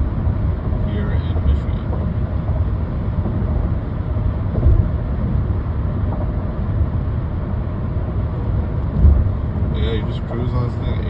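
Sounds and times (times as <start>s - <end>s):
road and tyre rumble in car: 0.0s - 11.0s
thump: 4.5s - 4.9s, 8.9s - 9.3s.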